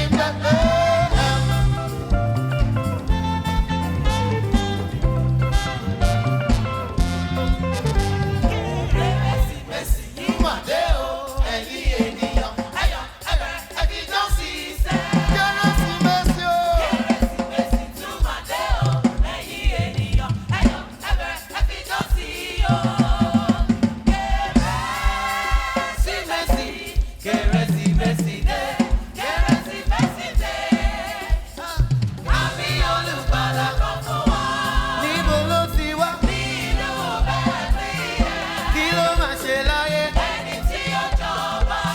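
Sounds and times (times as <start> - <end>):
band with steady bass beat: 0.0 - 11.6, 22.4 - 41.9
gospel singers: 0.0 - 41.9.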